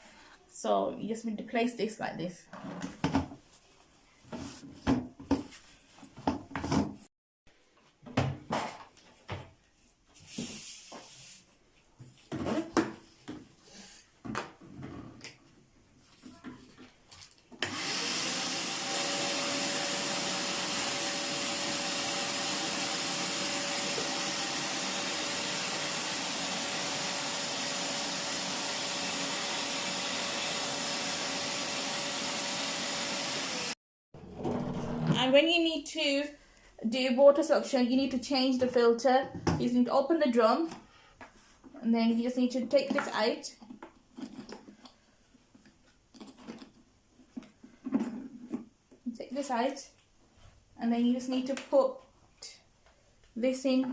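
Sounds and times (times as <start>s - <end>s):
vacuum motor whining: 17.6s - 33.8s.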